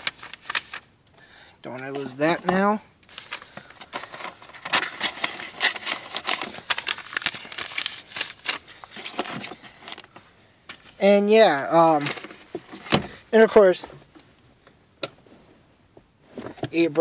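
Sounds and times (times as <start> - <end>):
paper rustling and crinkling: 0.0 - 0.9, 1.7 - 11.0, 11.8 - 13.0.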